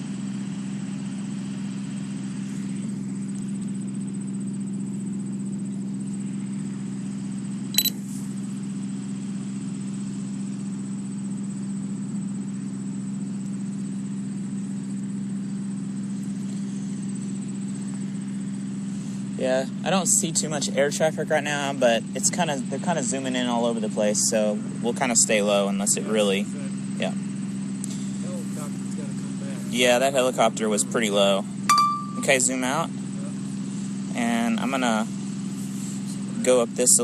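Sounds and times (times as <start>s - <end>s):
mechanical hum: 0.0s - 36.5s
high electronic blip: 31.7s - 32.4s.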